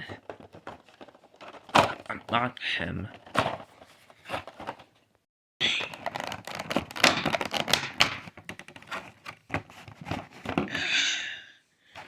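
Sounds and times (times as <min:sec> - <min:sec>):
cardboard box being opened: 0:00.0 - 0:02.2, 0:03.2 - 0:04.9, 0:05.9 - 0:10.8.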